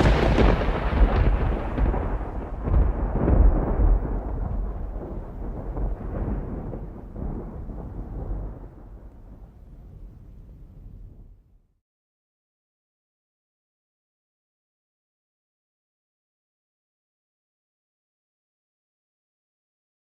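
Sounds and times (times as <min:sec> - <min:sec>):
deep rumbling boom: 0:00.0 - 0:11.4.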